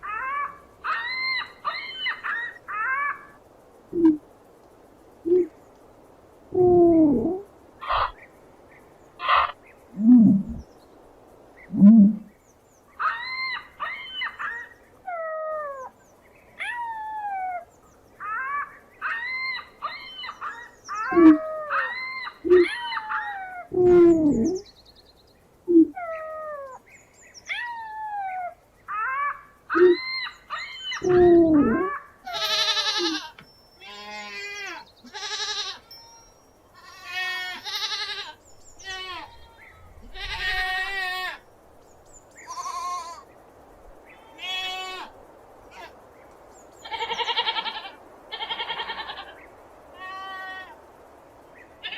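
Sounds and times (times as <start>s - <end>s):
ostrich deep hooting calls: 5.3s - 5.6s, 21.0s - 21.9s, 31.0s - 32.0s
goats bleating: 32.3s - 33.3s, 35.1s - 35.8s, 36.8s - 39.6s.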